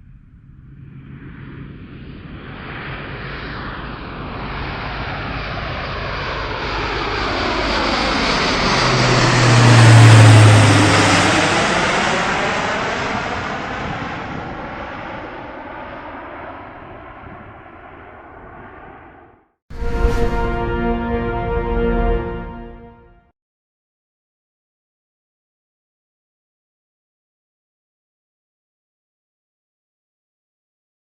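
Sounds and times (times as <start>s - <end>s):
propeller aircraft passing overhead: 0.0s - 23.1s.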